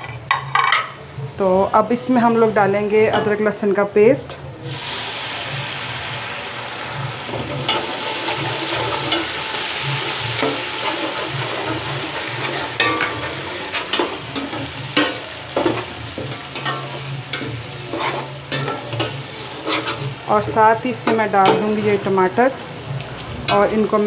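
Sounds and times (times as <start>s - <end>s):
paste sizzling in hot oil: 4.6s - 23.3s.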